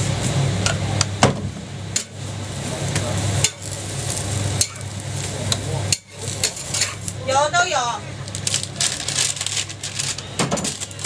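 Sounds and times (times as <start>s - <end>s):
steady low hum: 0.0s - 9.4s
food sizzling on a griddle: 1.5s - 11.0s
metal spatula scraping: 5.9s - 7.1s.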